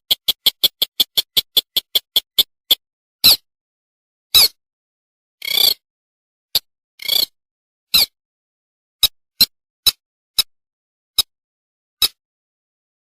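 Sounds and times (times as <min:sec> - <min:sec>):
bird chips: 0:00.0 - 0:02.8.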